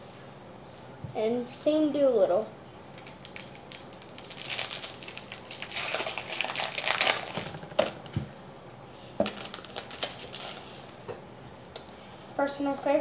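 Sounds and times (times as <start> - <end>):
card packaging rustling: 3.0 - 8.0, 9.2 - 11.0.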